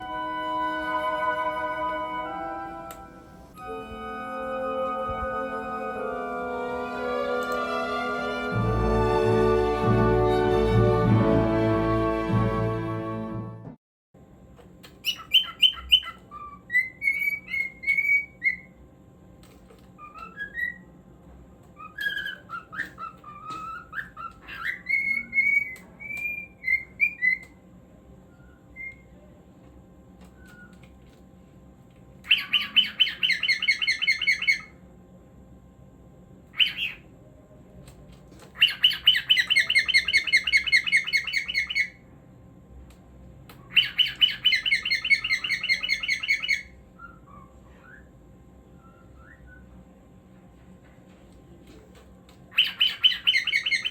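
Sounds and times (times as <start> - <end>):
fast repeated bird chirping: 15.0 - 16.2, 32.3 - 34.7, 38.6 - 42.0, 43.7 - 46.7, 52.6 - 53.9
cockatiel whistling: 15.0 - 18.7, 20.0 - 20.8, 21.8 - 27.5, 32.3 - 34.7, 38.6 - 42.0, 43.7 - 48.1, 48.8 - 49.7, 52.5 - 53.9.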